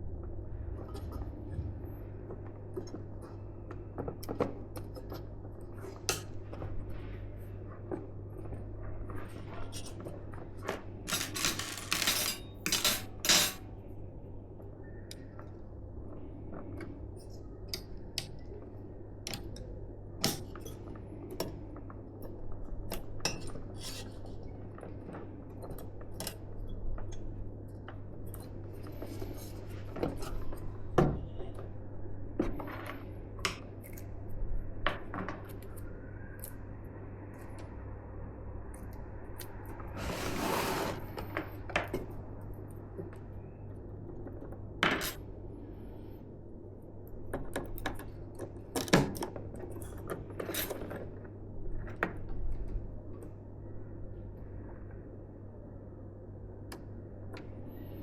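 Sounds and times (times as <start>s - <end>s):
steady low hum: 0.0s - 47.3s
clicks and clinks of pc parts: 11.1s - 13.6s.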